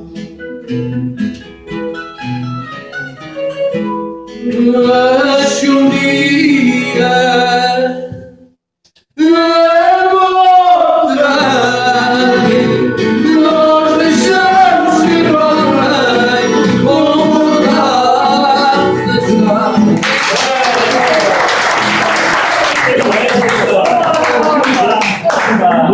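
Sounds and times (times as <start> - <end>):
man singing long held notes: 4.4 - 8.3, 9.2 - 20.0.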